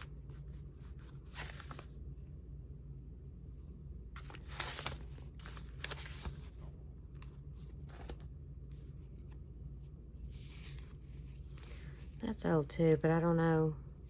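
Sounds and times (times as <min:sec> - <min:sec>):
paper envelopes rustling: 0:00.0 - 0:01.9, 0:04.2 - 0:09.5, 0:10.2 - 0:12.2
steady low hum: 0:00.0 - 0:14.0.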